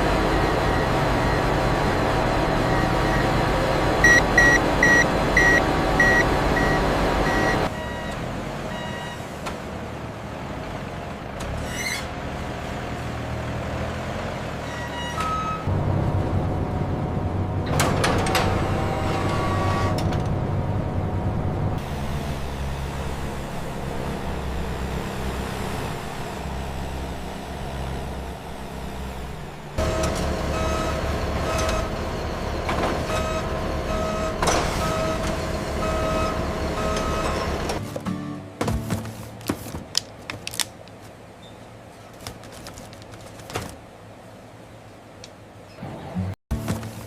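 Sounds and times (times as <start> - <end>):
reversing alarm beeping: 4.0 - 9.2, 29.8 - 37.6
vehicle engine running: 15.6 - 41.0.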